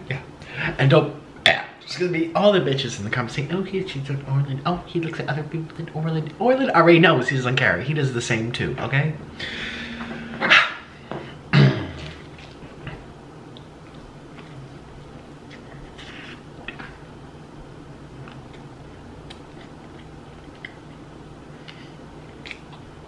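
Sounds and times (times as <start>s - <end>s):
low steady hum: 0.0s - 23.0s
biting into a burger: 11.8s - 17.0s
soft chewing and lip smacks: 12.0s - 23.0s.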